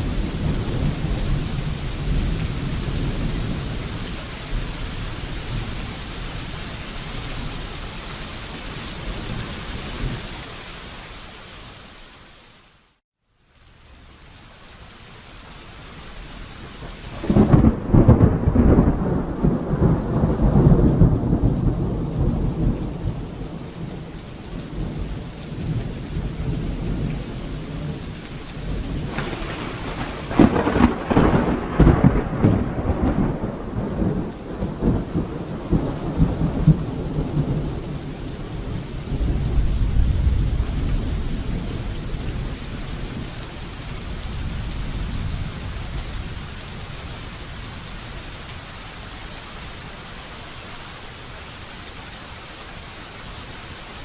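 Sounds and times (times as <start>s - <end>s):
thunder rumbling: 0.0s - 5.8s, 17.1s - 47.2s
steady rain falling: 0.0s - 54.0s.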